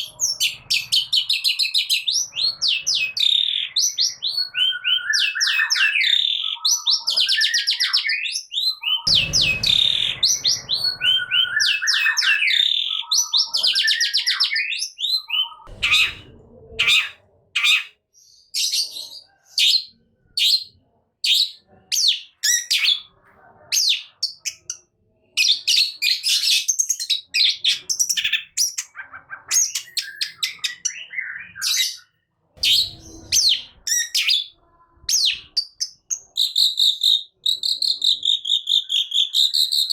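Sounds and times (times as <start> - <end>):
bird singing trills: 0.0 - 23.1, 25.4 - 39.9
sharp high bird notes: 8.8 - 13.6
low rumbles: 9.1 - 11.4.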